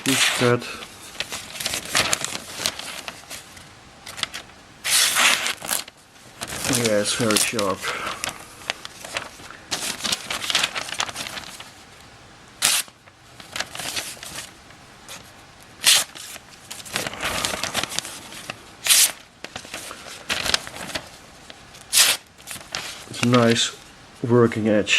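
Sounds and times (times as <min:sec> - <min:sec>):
knife slicing paper: 0:00.0 - 0:03.5, 0:04.2 - 0:05.9, 0:12.6 - 0:12.9, 0:21.9 - 0:23.1
paper rustling: 0:00.0 - 0:23.9.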